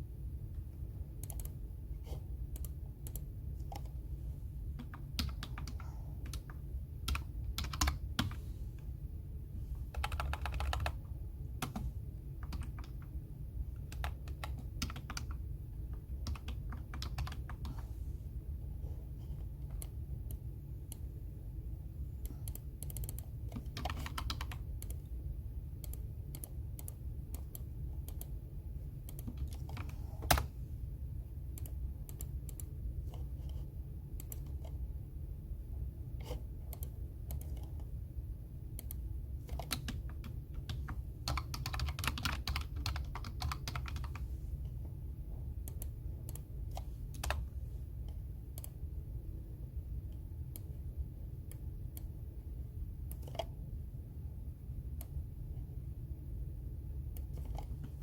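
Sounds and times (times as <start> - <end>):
steady low hum: 0.0 - 58.0
computer keyboard typing: 1.2 - 1.6, 2.5 - 4.0, 4.7 - 8.4, 9.8 - 13.2, 13.8 - 17.8, 19.4 - 21.0, 22.2 - 25.1, 25.8 - 28.4, 29.0 - 30.5, 31.5 - 34.8, 36.2 - 37.9, 38.7 - 44.3, 45.6 - 48.8, 53.0 - 53.6, 57.1 - 58.0.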